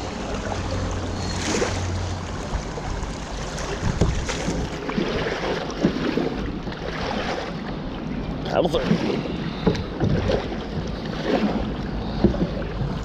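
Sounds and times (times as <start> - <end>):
water splashing around kayak: 0.0 - 13.0
paddle knocks: 3.4 - 7.6, 8.8 - 13.0.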